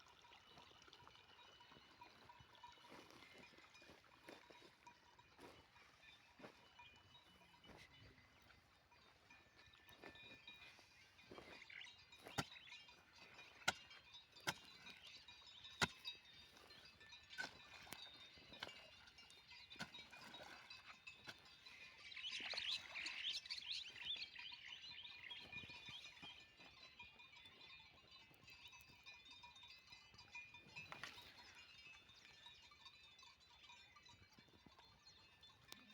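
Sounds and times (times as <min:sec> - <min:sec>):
faint bird chirping: 0:21.6 - 0:26.6.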